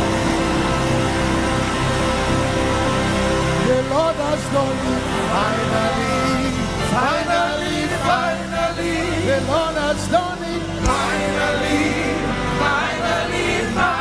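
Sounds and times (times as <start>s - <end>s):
gospel singing with band: 3.5s - 14.0s.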